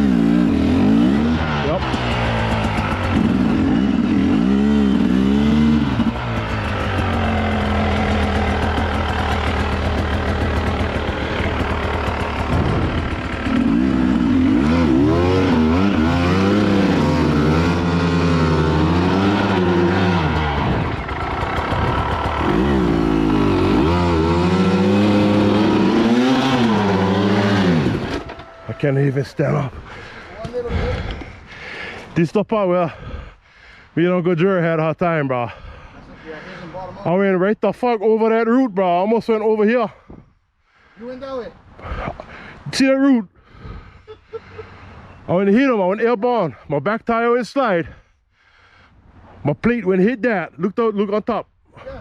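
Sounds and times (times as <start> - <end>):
dirt bike engine revving: 0.0 - 30.3.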